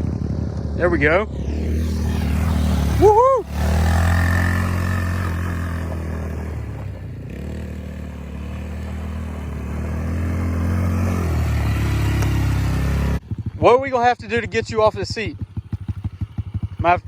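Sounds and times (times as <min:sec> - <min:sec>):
motorbike engine running: 0:00.0 - 0:17.0.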